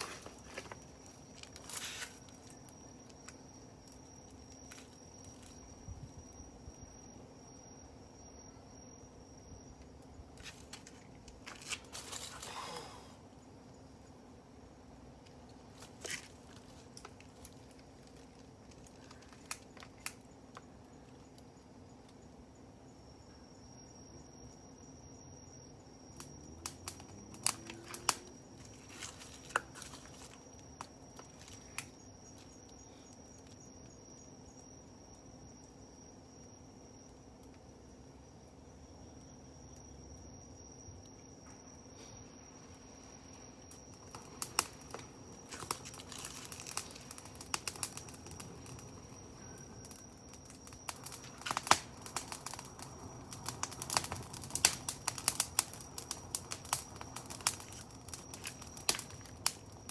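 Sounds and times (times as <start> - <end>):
campfire crackling: 0.0 - 22.6, 25.0 - 59.9
crickets chirring: 0.0 - 59.9
high insect trill: 0.0 - 59.9
sharp pops and snaps: 50.4 - 52.8.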